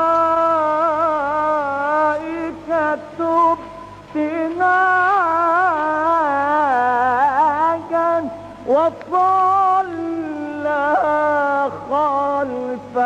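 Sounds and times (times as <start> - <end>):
man chanting: 0.0 - 13.0
short breaths: 3.7 - 4.1, 8.3 - 8.7.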